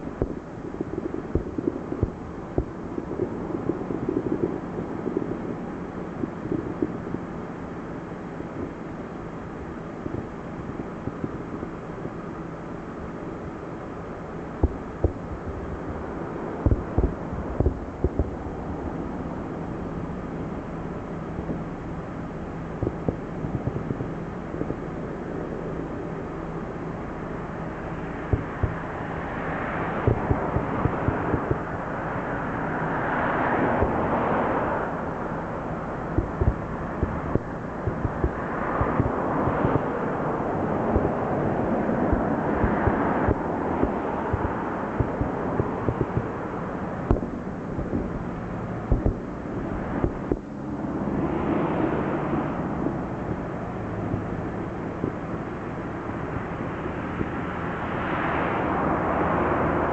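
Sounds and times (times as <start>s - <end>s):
distant firework explosions: 0.0s - 7.5s, 14.6s - 18.5s, 22.6s - 25.7s, 28.1s - 29.2s, 29.8s - 31.9s, 33.6s - 34.3s, 36.0s - 50.5s
steady rushing noise: 0.0s - 59.9s
sharp booms: 36.1s - 40.0s, 47.0s - 48.1s, 48.8s - 49.3s.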